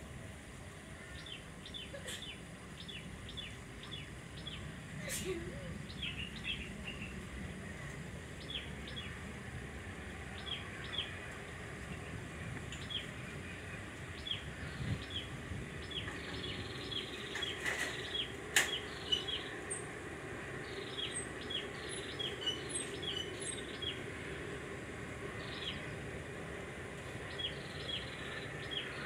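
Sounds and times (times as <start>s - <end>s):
outdoor background noise: 0.0s - 29.0s
small birds chirping: 1.0s - 7.3s, 11.8s - 19.9s, 20.5s - 24.3s, 25.4s - 26.1s, 27.2s - 29.0s.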